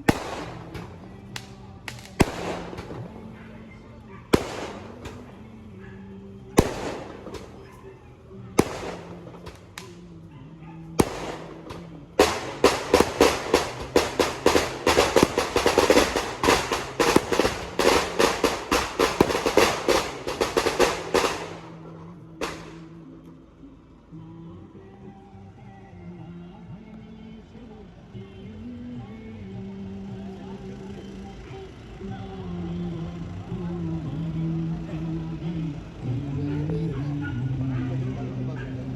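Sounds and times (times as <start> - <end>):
firecrackers banging and cracking: 0.0 - 3.5, 4.3 - 5.7, 6.6 - 7.9, 8.6 - 10.2, 11.0 - 23.0.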